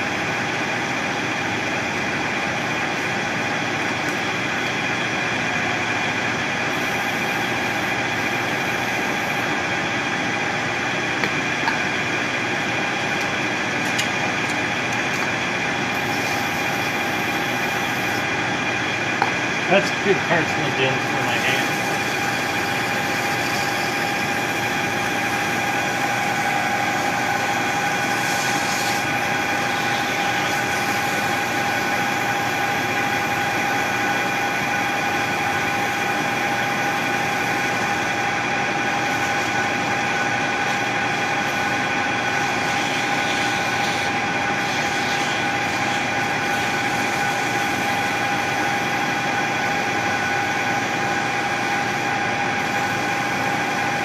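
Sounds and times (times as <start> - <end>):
machine tool whining: 2.4 - 33.2
motor and cutting hiss: 6.7 - 9.6, 15.8 - 18.3, 19.7 - 33.2, 38.9 - 49.4.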